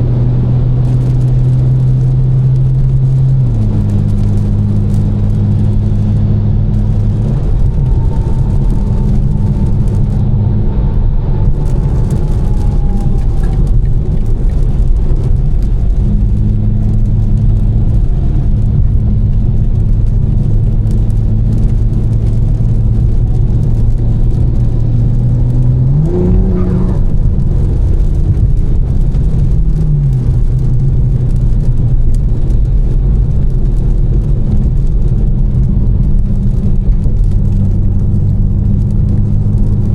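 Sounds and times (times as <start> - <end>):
car engine droning: 0.0 - 39.9
tyres hissing on wet road: 6.8 - 10.2, 11.4 - 39.9.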